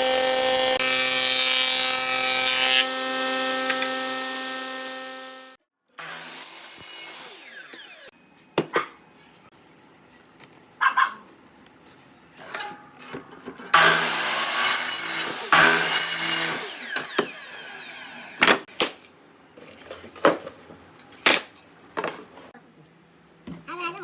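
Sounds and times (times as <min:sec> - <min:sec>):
power saw cutting wood: 0:00.0 - 0:08.1, 0:13.7 - 0:18.7.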